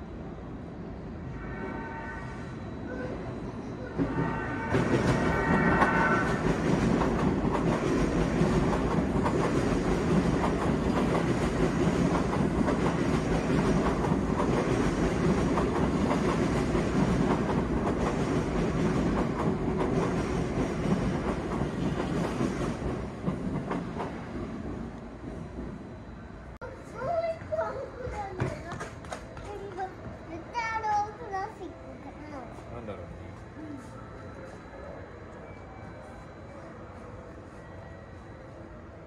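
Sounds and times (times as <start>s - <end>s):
train wheels clattering over rails: 4.0s - 24.4s.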